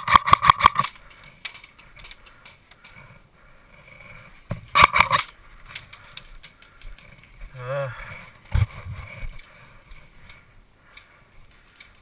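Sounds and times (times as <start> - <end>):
airsoft gun firing rapid shots: 0.0 - 0.9.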